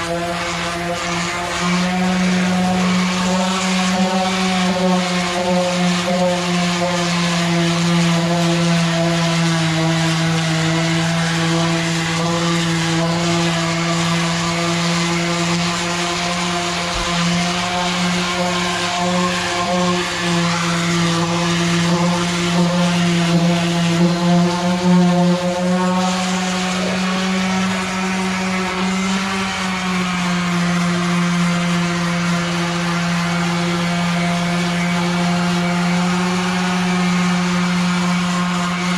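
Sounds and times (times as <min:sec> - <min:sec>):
electric polisher on metal: 0:00.0 - 0:38.9.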